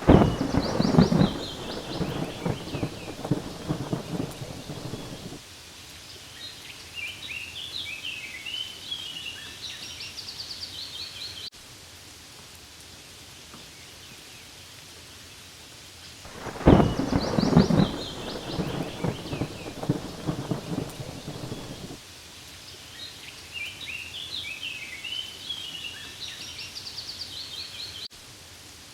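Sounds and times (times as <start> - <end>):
small birds chirping: 0.0 - 5.4, 16.3 - 22.0
thunder rumbling: 0.0 - 5.4, 16.3 - 22.0
steady rain: 0.0 - 28.9.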